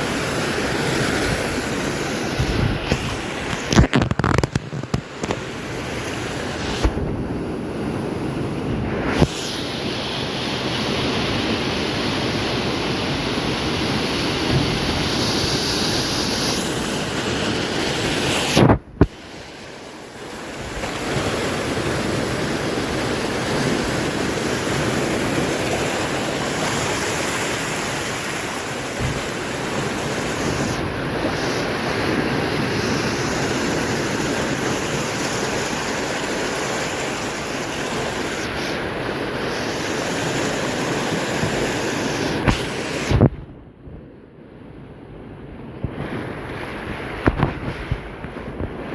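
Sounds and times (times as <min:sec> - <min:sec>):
sea swell surging and breaking: 0:00.0 - 0:43.5, 0:44.7 - 0:48.9
wind buffeting microphone: 0:00.7 - 0:09.6, 0:44.9 - 0:48.9.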